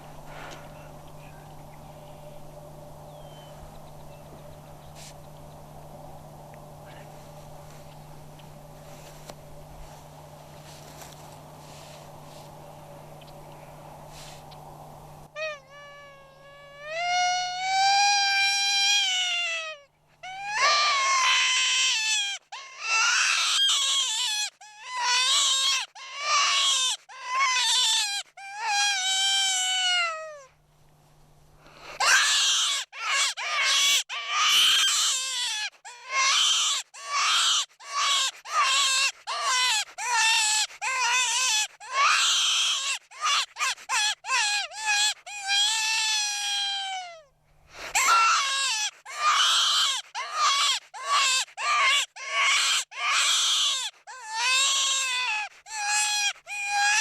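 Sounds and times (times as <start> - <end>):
predator call squeals: 15.4 - 30.4, 32.0 - 47.2, 47.8 - 57.0.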